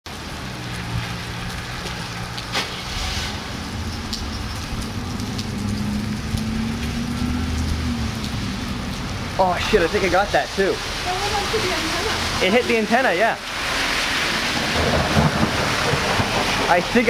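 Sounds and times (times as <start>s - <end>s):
steady rain falling: 0.1s - 17.0s.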